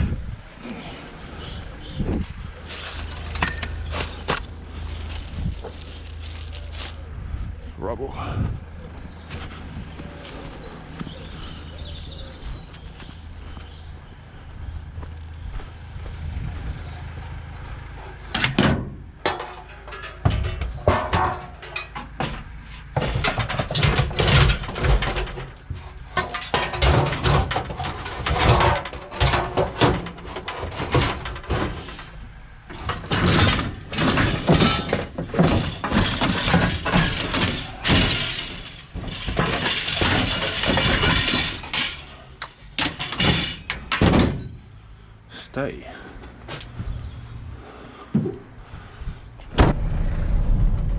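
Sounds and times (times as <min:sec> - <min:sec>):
rubble clattering and knocking: 0:02.6 - 0:07.1, 0:18.2 - 0:44.9
breaking and crunching: 0:02.7 - 0:07.1, 0:18.4 - 0:44.5.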